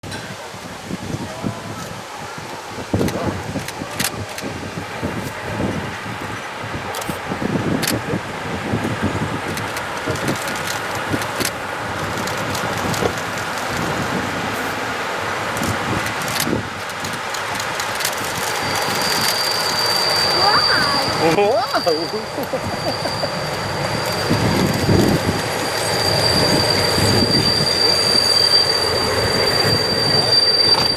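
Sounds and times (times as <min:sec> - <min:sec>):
diesel locomotive engine rumbling: 0:00.0 - 0:30.9
high-pitched wheel squeal: 0:18.1 - 0:30.9.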